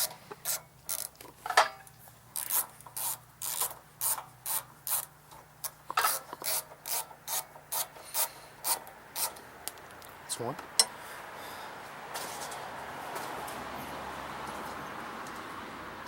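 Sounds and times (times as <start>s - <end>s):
ratchet wrench clicking: 0.0s - 1.2s, 2.4s - 9.4s.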